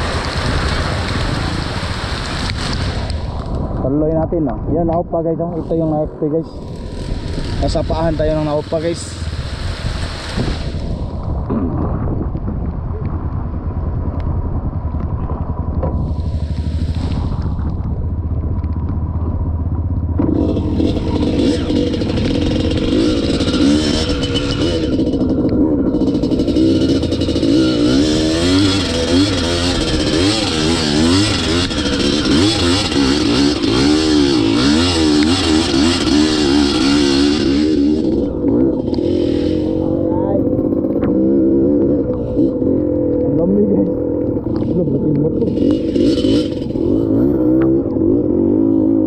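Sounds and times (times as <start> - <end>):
dirt bike engine revving: 5.2 - 11.7, 19.1 - 49.0.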